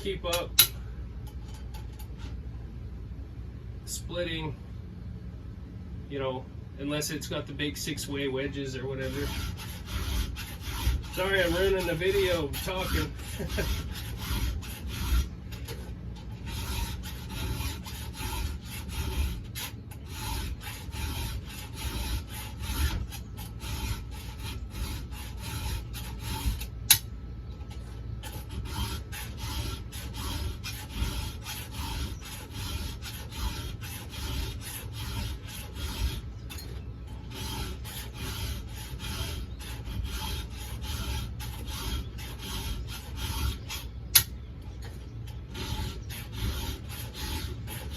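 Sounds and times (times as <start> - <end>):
file rasping on chainsaw chain: 0.0 - 0.8, 7.7 - 27.1, 27.7 - 47.9
sharp click: 44.1 - 44.4.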